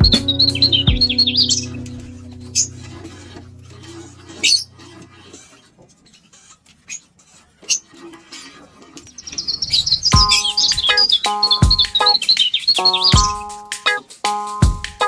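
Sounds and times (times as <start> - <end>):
lovebirds chirping: 0.0 - 4.7, 9.2 - 13.2.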